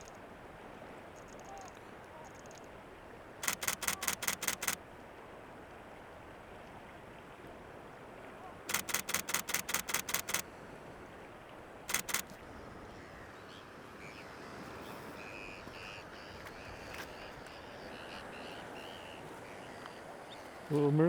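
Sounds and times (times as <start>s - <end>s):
camera shutter bursts: 3.4s - 4.8s, 8.7s - 10.4s, 11.9s - 12.4s
gulls calling: 11.9s - 20.8s.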